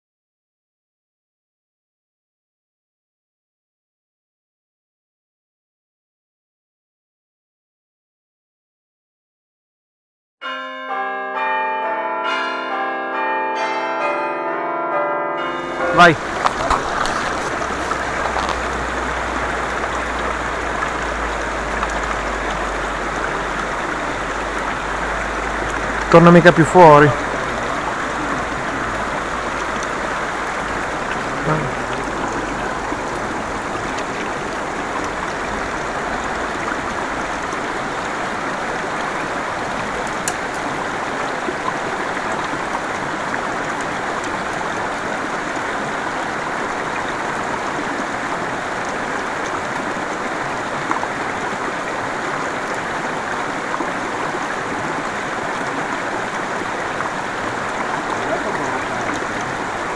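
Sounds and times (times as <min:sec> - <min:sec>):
river rushing over rocks: 0:15.7 - 0:59.9.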